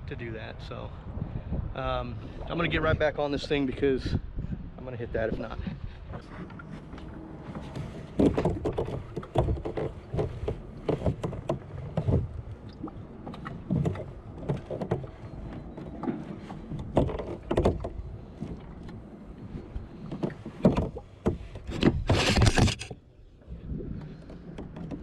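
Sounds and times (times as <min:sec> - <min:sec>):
water sloshing against hull: 0:05.4 - 0:25.0.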